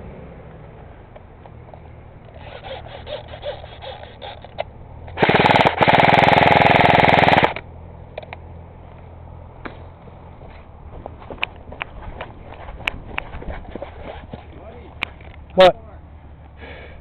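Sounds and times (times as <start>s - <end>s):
airsoft rifle firing full-auto: 5.2s - 7.6s.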